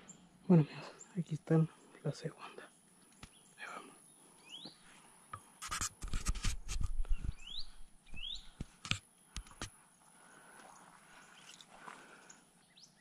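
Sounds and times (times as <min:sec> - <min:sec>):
bird chirping: 0:00.0 - 0:05.5, 0:07.1 - 0:08.6, 0:09.8 - 0:13.0.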